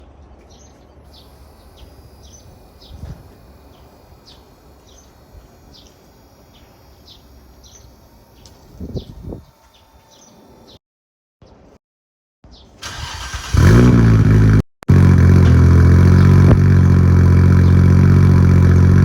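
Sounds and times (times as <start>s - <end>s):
small bird chirping: 0.4s - 10.8s.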